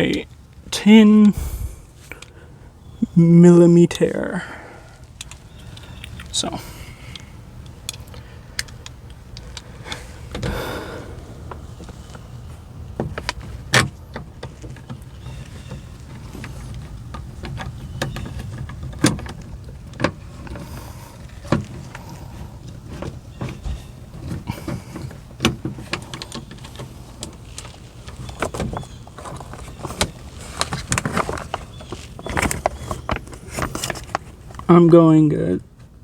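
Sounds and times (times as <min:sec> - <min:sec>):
faint low hum: 0:01.3 - 0:07.4.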